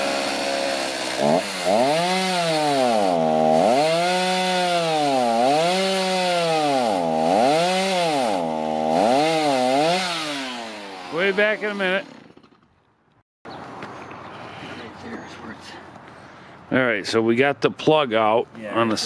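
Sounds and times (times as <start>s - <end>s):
electric chainsaw cutting log: 0.0s - 12.7s.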